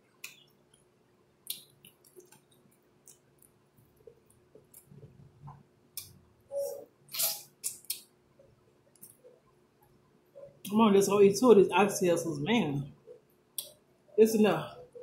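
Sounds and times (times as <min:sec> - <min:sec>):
wet clicks and lip smacks: 0:01.4 - 0:03.6, 0:07.6 - 0:08.1.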